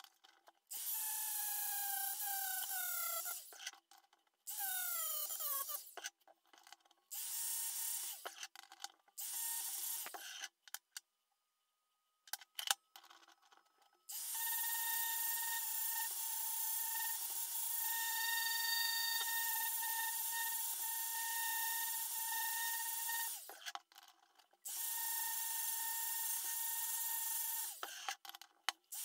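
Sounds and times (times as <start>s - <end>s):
power tool motor whine: 14.1s - 23.5s.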